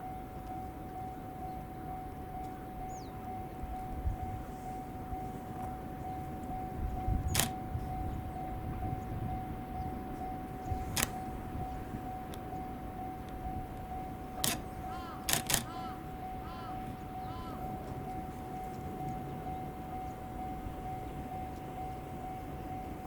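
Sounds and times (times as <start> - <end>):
camera shutter clicks: 15.3 - 15.7.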